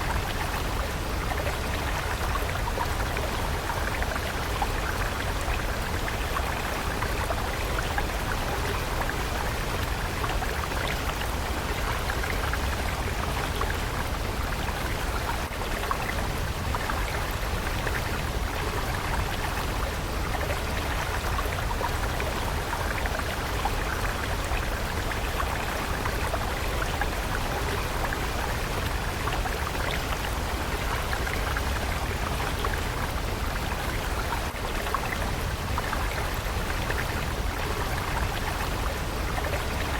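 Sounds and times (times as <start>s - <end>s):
water stream flowing: 0.0s - 39.9s.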